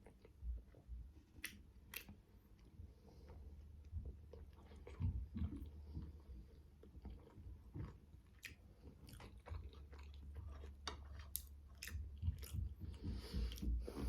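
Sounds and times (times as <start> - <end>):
close chewing: 0.0 - 14.0
wet mouth clicks: 1.4 - 2.2.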